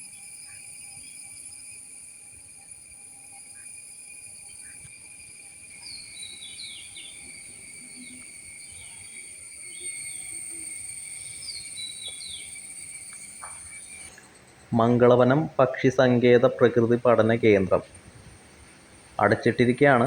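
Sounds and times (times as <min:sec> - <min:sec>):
insects droning: 0:00.0 - 0:20.0
bird calling: 0:04.4 - 0:04.9, 0:05.5 - 0:16.0.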